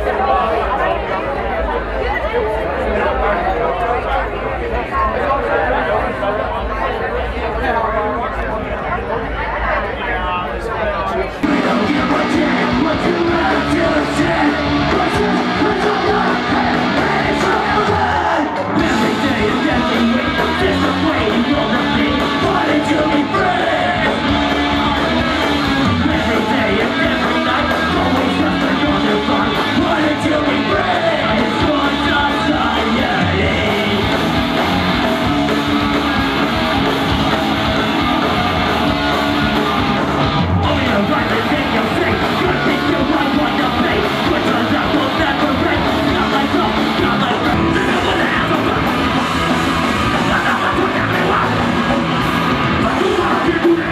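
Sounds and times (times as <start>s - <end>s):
person singing: 11.4s - 36.2s, 40.6s - 53.9s
electric guitar: 11.4s - 53.9s
punk rock band playing live: 11.4s - 53.9s.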